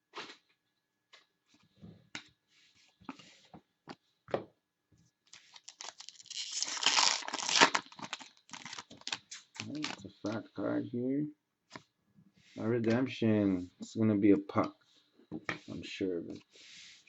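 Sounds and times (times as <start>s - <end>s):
pack wrapper tearing: 5.3s - 10.0s.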